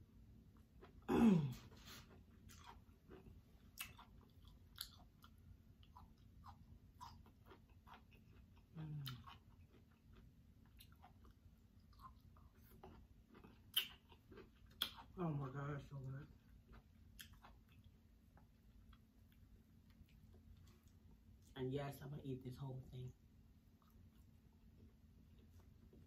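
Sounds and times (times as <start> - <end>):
person chewing with mouth clicks: 0.6 - 15.2, 16.4 - 21.5, 23.8 - 24.4.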